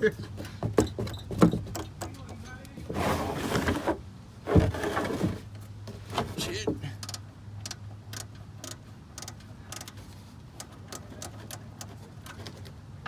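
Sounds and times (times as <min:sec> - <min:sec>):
ratchet wrench clicking: 0:07.0 - 0:10.0.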